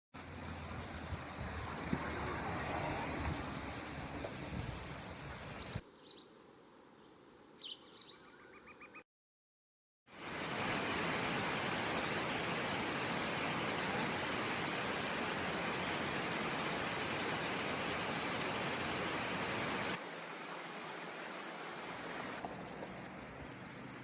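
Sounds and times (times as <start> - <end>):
water rushing over small waterfall: 10.1 - 22.4.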